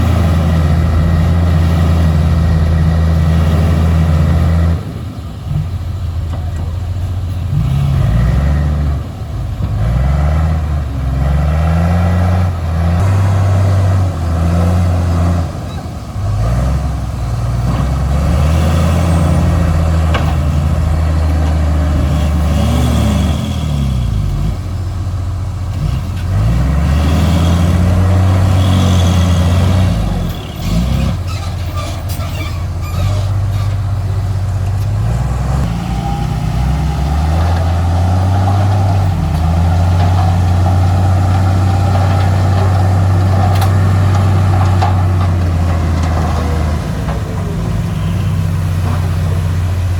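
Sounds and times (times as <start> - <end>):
diesel earthmoving machinery running: 0.0 - 49.9.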